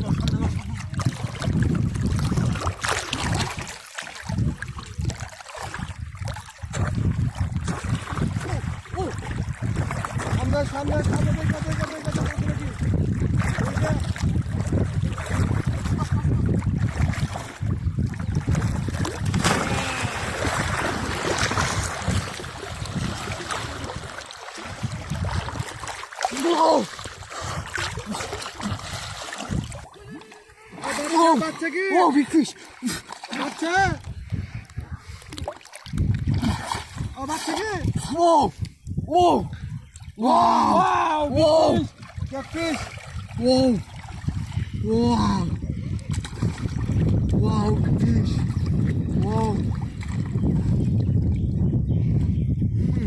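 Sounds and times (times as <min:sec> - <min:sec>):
wind buffeting microphone: 0:00.0 - 0:32.4, 0:33.6 - 0:53.0
water splashing around boat: 0:00.0 - 0:50.8
short voice: 0:19.6 - 0:20.3.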